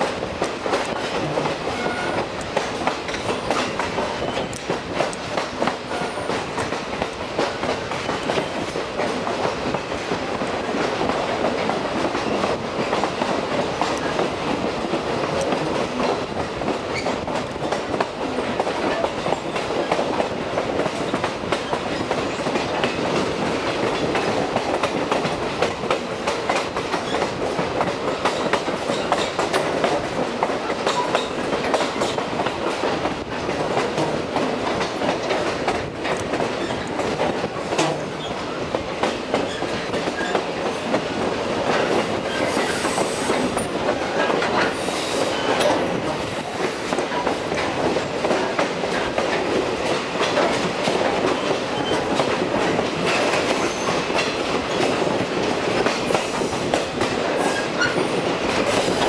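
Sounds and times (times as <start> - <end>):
train wheels clacking on rails: 0.0 - 59.0.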